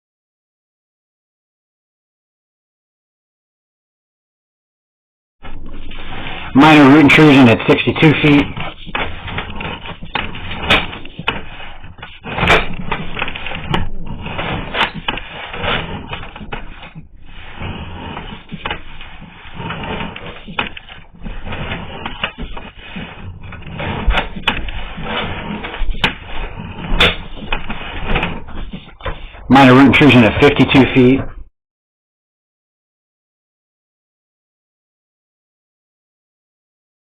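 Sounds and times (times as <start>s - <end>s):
cable rattling and rubbing: 5.4s - 31.4s.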